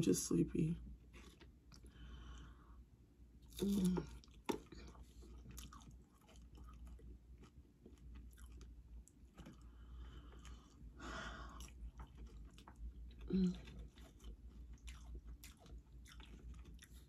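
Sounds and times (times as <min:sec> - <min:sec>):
tortilla chips crunching: 0:03.4 - 0:17.0.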